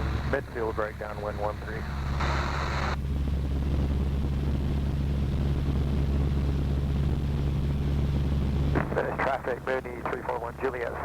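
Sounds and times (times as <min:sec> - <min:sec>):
airplane engine and propeller droning: 0:00.0 - 0:11.0.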